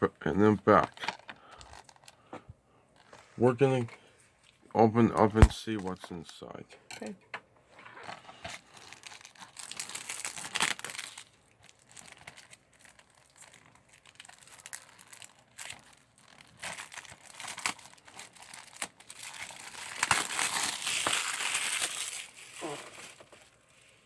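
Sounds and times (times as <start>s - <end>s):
plastic wrap crinkling and tearing: 0.7s - 2.3s, 7.8s - 24.0s.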